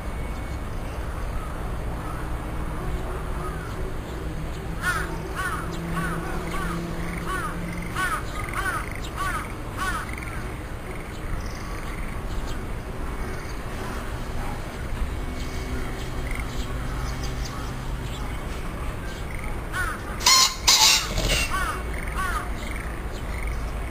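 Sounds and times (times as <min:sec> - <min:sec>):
bird harsh calls: 0:04.8 - 0:12.6, 0:19.1 - 0:23.0.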